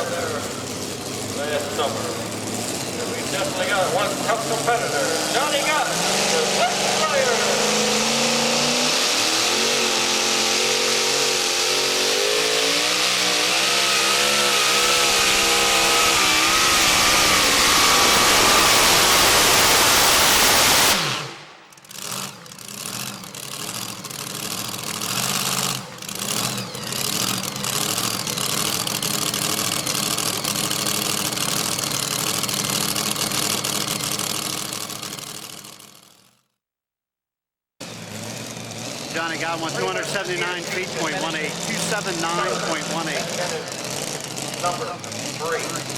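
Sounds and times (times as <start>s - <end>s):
truck engine at full throttle: 0.0s - 36.2s, 37.8s - 45.9s
quieter uneven engine sound: 38.6s - 45.9s.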